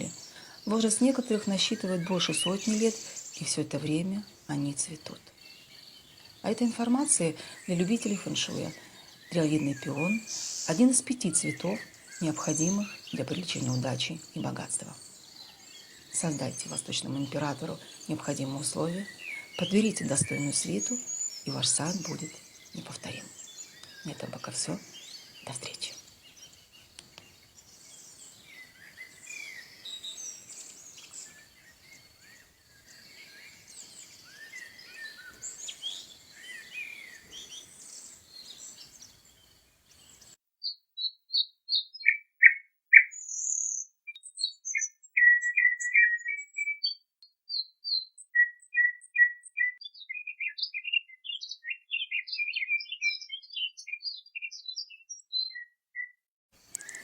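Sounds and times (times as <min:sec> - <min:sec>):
background hiss: 0:00.0 - 0:40.4, 0:56.6 - 0:57.0
bird chirps and trills: 0:00.0 - 0:57.0
chorus of birds chirping: 0:00.0 - 0:57.0.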